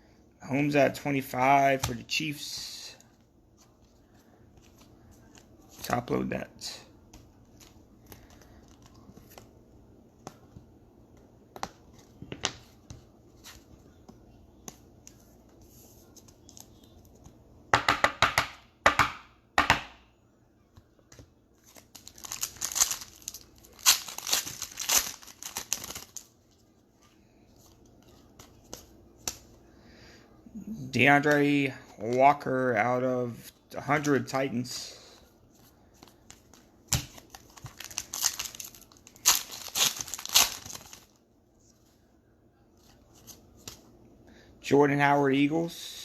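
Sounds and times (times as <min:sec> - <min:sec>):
wrappers tearing and crinkling: 0:21.7 - 0:26.3, 0:37.1 - 0:41.2.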